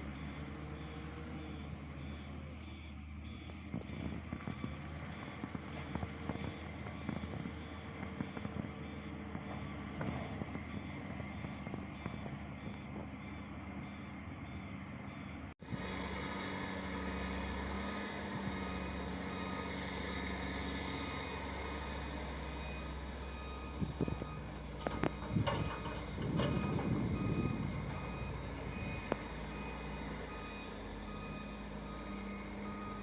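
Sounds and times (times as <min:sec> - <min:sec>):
diesel engines running: 0:00.0 - 0:33.0
machinery clanks and knocks: 0:24.5 - 0:28.3.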